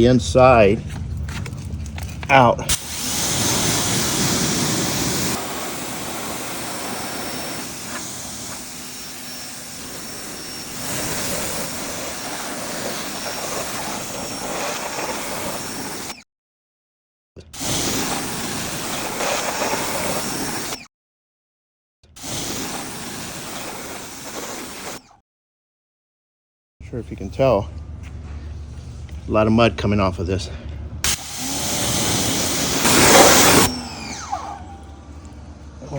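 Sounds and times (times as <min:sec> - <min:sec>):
pressure washer spraying water: 0:02.7 - 0:16.2, 0:17.6 - 0:20.8, 0:22.2 - 0:25.0, 0:31.1 - 0:34.6.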